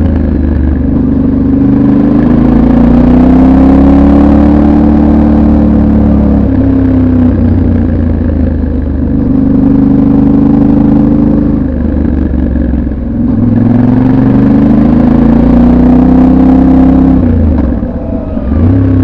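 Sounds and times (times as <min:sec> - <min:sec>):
motorcycle engine while riding: 0:00.0 - 0:19.0.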